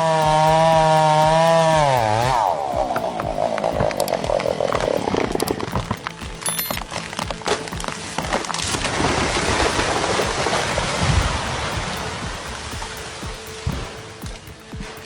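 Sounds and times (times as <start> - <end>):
chainsaw cutting: 0.0 - 6.2.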